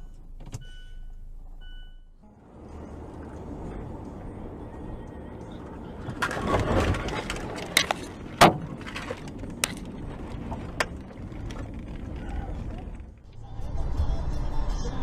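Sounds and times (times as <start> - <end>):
vehicle collision: 6.0 - 14.4.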